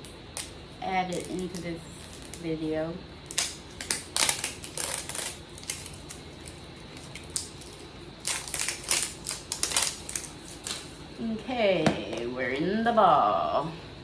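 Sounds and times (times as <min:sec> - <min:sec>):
plastic crinkling and clicking: 0:03.3 - 0:10.9.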